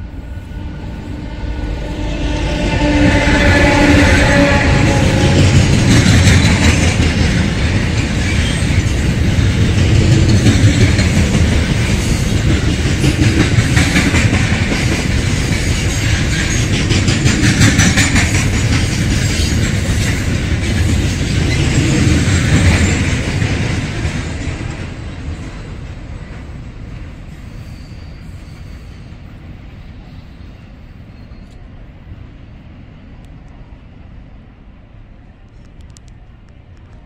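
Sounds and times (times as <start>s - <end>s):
locomotive horn: 0.4s - 5.8s.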